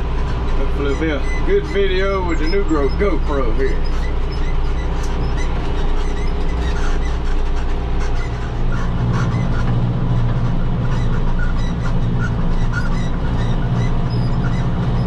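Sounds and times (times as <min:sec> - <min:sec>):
hay baler rattling: 0:00.0 - 0:11.4
tractor engine running under load: 0:00.0 - 0:15.0.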